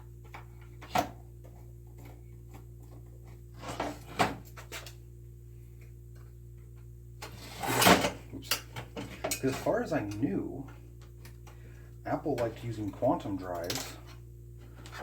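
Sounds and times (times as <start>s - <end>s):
steady low hum: 0.0s - 15.0s
metal scrape: 7.3s - 8.1s.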